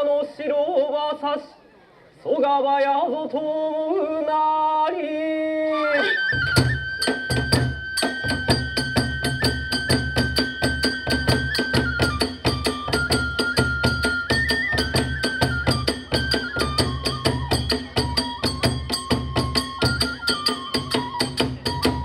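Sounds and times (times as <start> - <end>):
transverse flute long notes: 5.5 - 22.0
fast drum strokes: 6.5 - 22.0
small hand cymbals: 6.8 - 22.0.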